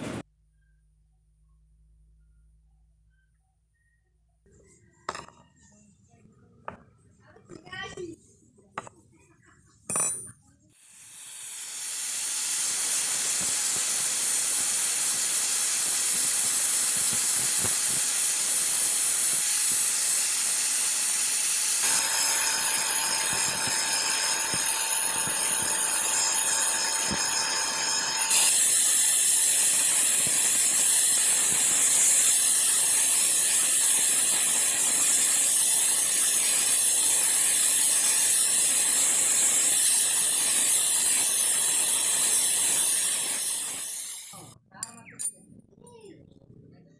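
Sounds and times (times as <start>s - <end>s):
electric grinder on steel: 10.8s - 44.6s.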